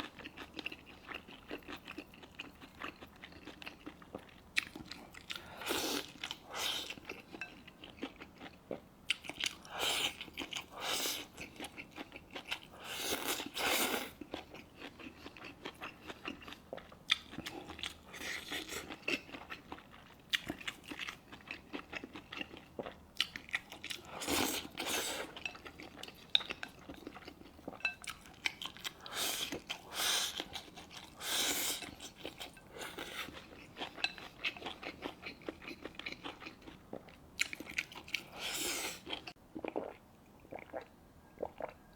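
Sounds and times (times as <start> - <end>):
close chewing and biting: 7.8 - 40.0.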